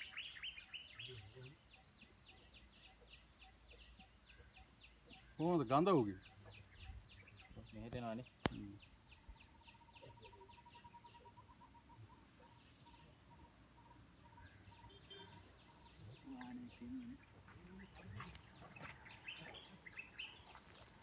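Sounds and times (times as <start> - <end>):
bird trill: 0.0 - 21.0
distant bird chirps: 0.0 - 21.0.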